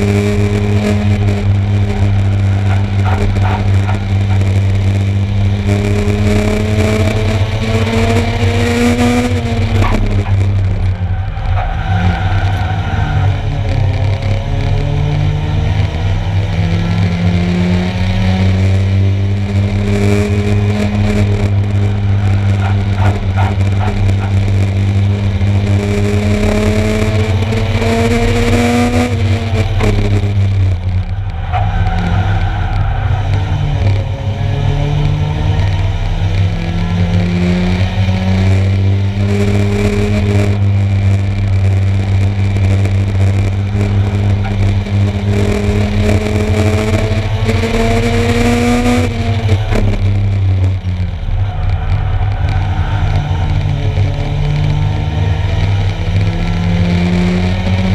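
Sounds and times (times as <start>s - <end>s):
low rumble: 0.0s - 17.7s, 49.1s - 56.8s
racing car engine accelerating: 0.0s - 57.9s.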